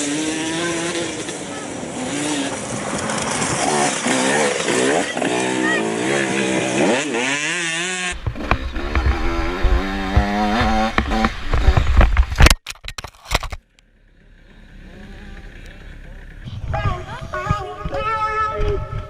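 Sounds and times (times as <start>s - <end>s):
motocross bike engine revving: 0.0s - 12.3s, 13.9s - 16.5s.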